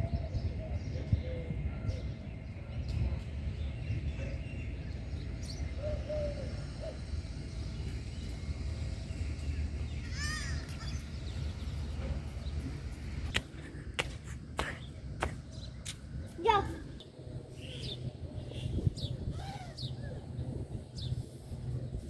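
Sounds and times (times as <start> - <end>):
steady low rumble: 0.0 - 22.0
bird calling: 19.3 - 20.2.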